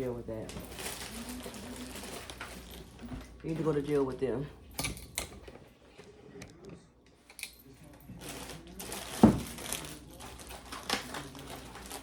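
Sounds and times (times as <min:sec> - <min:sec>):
rustling: 0:00.4 - 0:04.2, 0:07.8 - 0:12.0.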